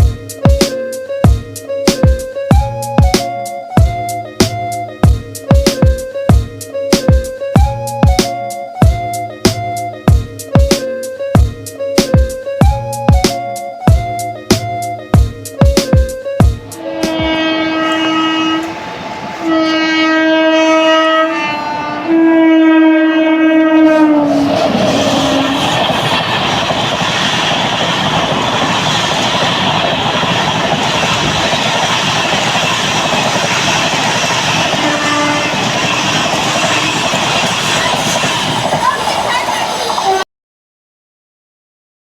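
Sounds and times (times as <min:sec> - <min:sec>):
train rushing and clattering past: 0:15.2 - 0:22.6, 0:23.8 - 0:40.2
locomotive horn blasts: 0:16.6 - 0:24.5, 0:34.7 - 0:37.2.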